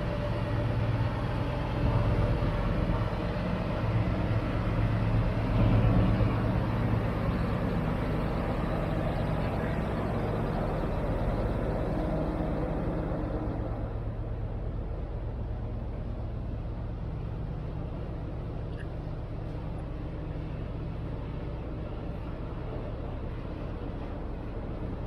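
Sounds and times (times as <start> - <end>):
diesel locomotive engine hum: 0.0 - 25.0
freight wagons rumbling on rails: 0.0 - 25.0.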